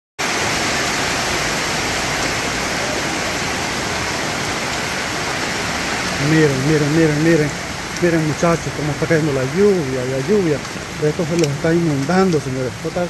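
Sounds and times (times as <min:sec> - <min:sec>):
heavy rain on an umbrella: 0:00.2 - 0:13.0.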